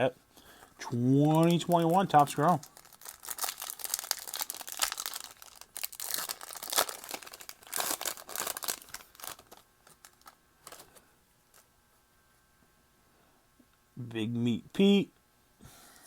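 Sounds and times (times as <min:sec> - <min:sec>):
foil wrapper tearing and crinkling: 0:01.2 - 0:11.7.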